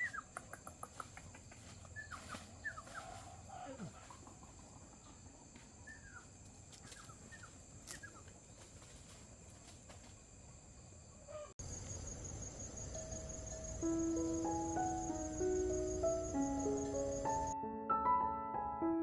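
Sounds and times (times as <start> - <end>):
bird chirps: 0.0 - 4.2, 11.3 - 17.6
insects trilling: 0.0 - 17.6
music notes: 13.3 - 19.0.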